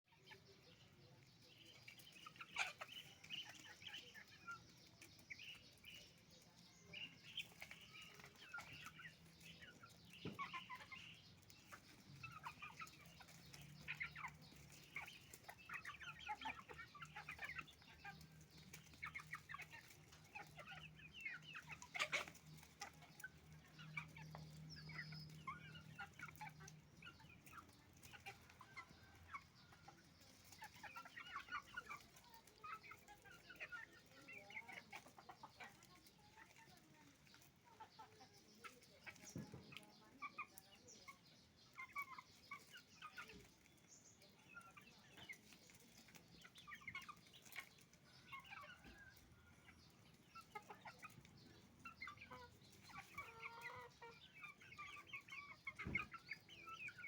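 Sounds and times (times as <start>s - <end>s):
hens and roosters clucking: 0.0s - 57.0s.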